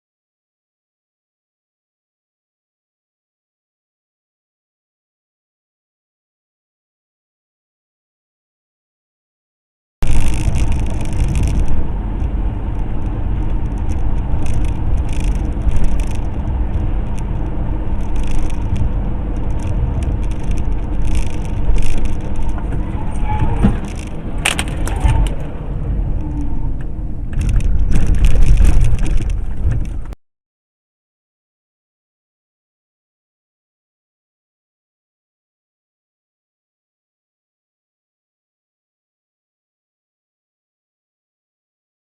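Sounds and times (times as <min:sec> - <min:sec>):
road and wind rumble: 0:10.0 - 0:30.2.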